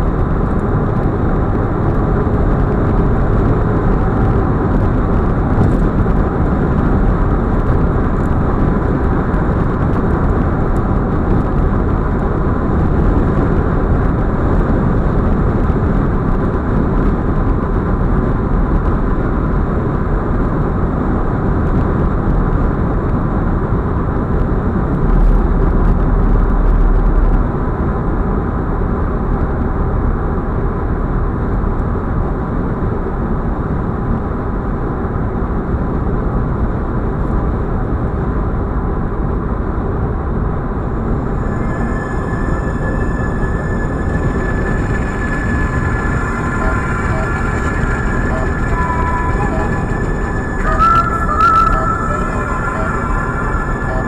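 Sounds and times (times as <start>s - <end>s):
tyre and wind noise: 0.0s - 20.8s
deep rumble: 0.0s - 30.4s, 38.9s - 54.0s.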